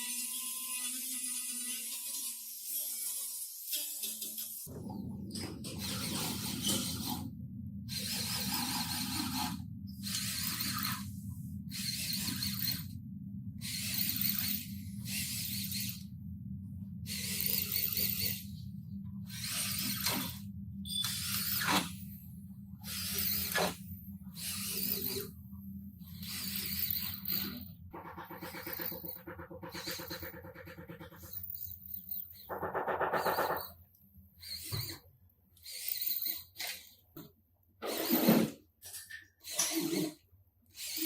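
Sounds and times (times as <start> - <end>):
workshop tool running in bursts: 22.8 - 25.4, 26.0 - 31.7.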